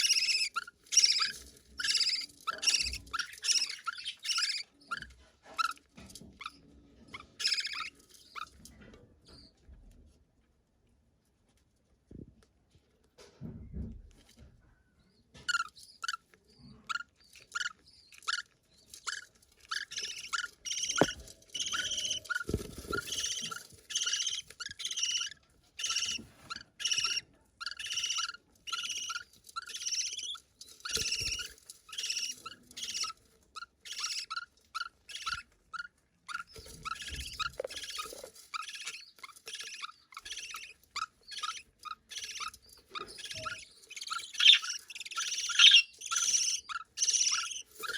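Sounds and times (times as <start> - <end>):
budgerigar chick chirping: 0.0 - 5.1, 7.4 - 8.0, 16.9 - 47.9.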